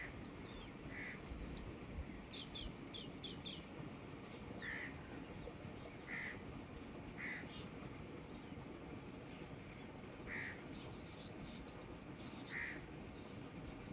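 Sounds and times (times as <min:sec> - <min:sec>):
wild birds calling: 0:00.0 - 0:01.7, 0:07.2 - 0:07.6, 0:10.3 - 0:12.9
steady low background noise: 0:00.0 - 0:13.9.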